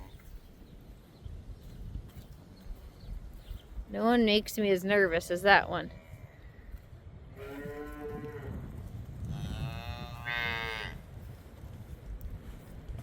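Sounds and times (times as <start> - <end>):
cattle mooing: 7.4 - 8.6, 9.3 - 11.0.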